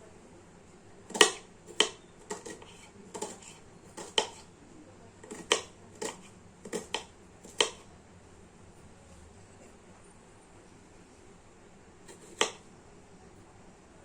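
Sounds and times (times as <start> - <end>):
knife chopping on cutting board: 1.1 - 4.5, 5.2 - 7.9, 12.1 - 12.6.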